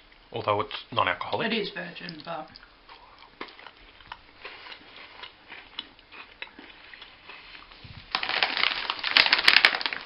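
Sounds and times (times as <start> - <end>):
person chewing biscuit: 2.6 - 10.0.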